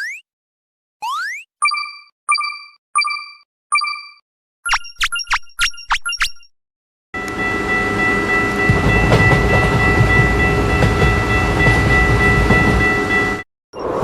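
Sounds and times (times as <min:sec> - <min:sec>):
long horn-like tone: 0:07.2 - 0:09.7
railroad crossing bell: 0:07.2 - 0:14.0
train wagons rumbling: 0:07.2 - 0:14.0.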